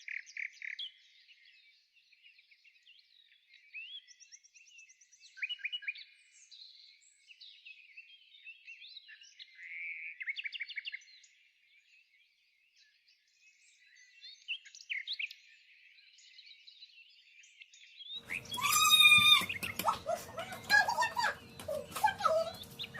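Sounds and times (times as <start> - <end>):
songbirds chirping and singing: 12.8 - 22.9.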